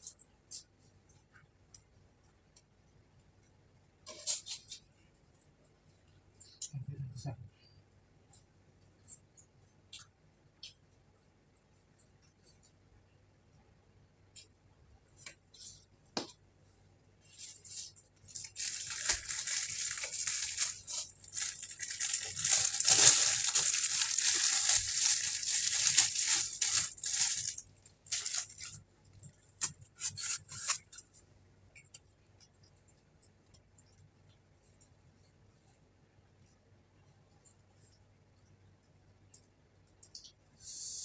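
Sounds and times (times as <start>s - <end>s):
rustling and crackling: 17.2s - 34.1s.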